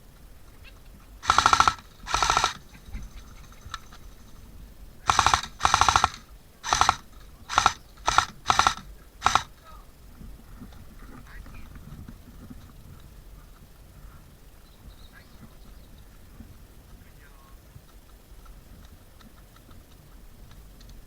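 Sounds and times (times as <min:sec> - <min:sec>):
airsoft gun rapid-fire bursts: 0:01.2 - 0:04.4, 0:05.0 - 0:09.7.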